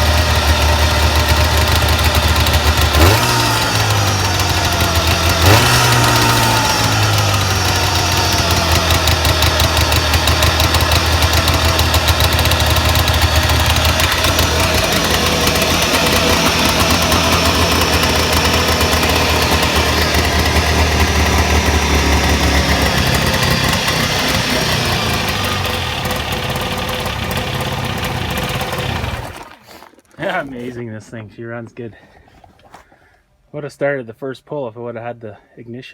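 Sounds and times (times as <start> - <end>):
snowmobile engine running: 0.0 - 30.9.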